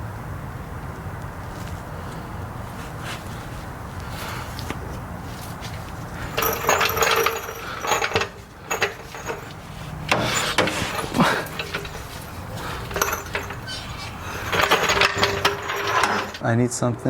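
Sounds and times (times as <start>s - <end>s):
metal tools clanking and jingling: 4.1s - 4.6s, 5.3s - 16.4s.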